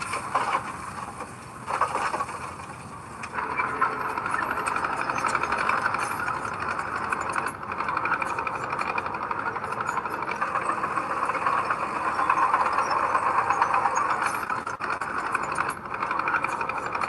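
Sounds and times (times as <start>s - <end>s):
diesel engine pulsing clatter: 0.0s - 17.0s.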